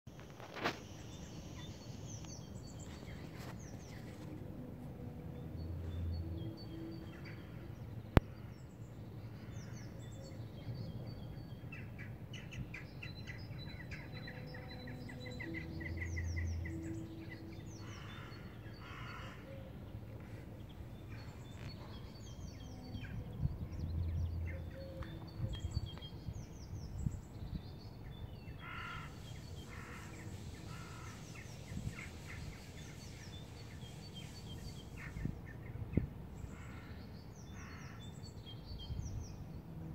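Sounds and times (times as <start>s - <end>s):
birds chirping and trilling: 0.4s - 39.9s
low droning tone: 3.8s - 11.3s, 13.3s - 27.1s
crows cawing: 17.8s - 19.5s, 28.6s - 31.2s, 37.6s - 38.0s.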